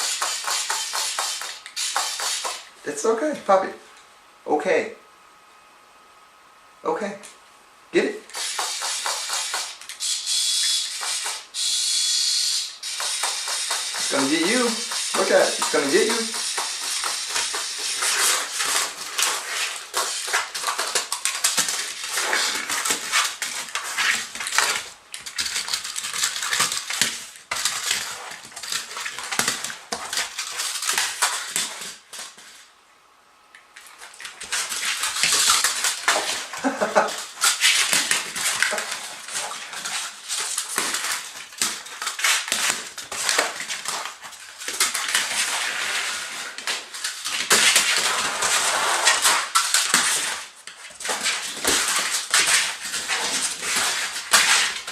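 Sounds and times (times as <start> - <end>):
dog scuffling with plastic toy: 13.0 - 32.5, 33.8 - 54.9.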